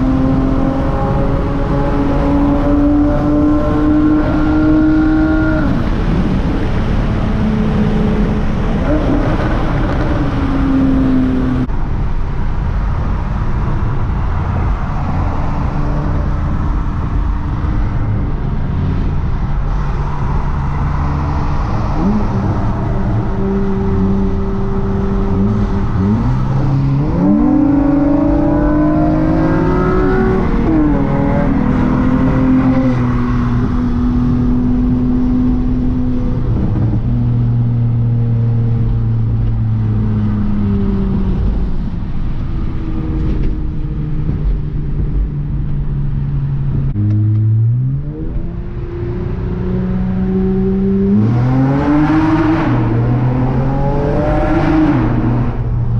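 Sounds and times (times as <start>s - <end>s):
car engine revving: 0.0s - 11.7s, 14.4s - 55.9s.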